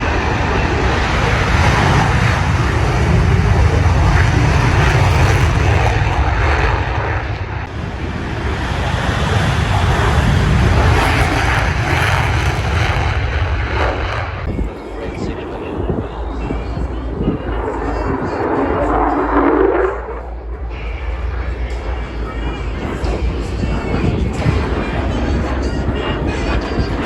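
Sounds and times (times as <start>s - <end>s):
jet engine deep rumble and hiss: 0.0s - 25.1s.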